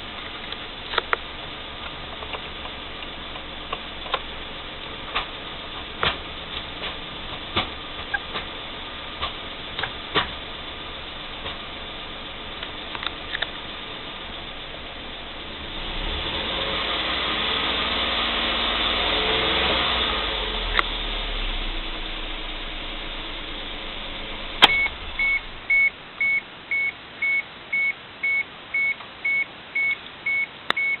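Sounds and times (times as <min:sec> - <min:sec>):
car engine running: 0:00.0 - 0:26.7
high electronic warning beeper: 0:24.7 - 0:31.0.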